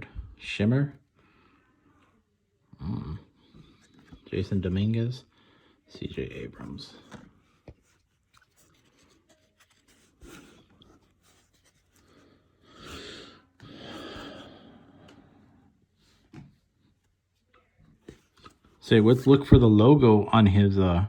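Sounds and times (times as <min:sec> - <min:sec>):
papery sliding rustle: 0:06.6 - 0:12.4.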